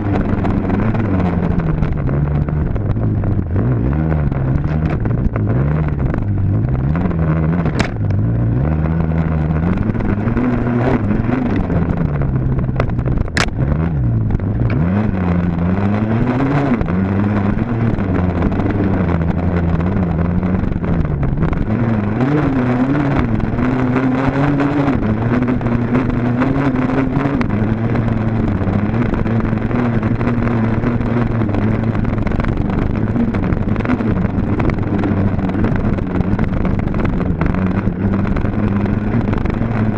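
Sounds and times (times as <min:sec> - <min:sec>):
wind noise: 0:00.0 - 0:39.9
sharp clicks: 0:12.8 - 0:13.6.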